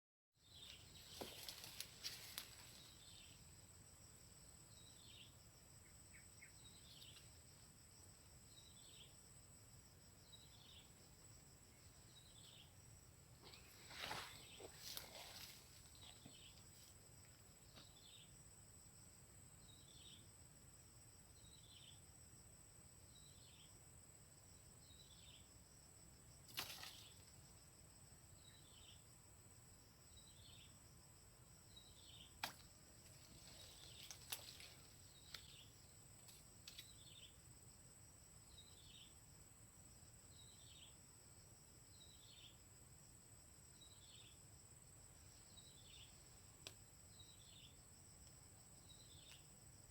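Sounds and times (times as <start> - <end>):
high insect whine: 23.1 - 49.9.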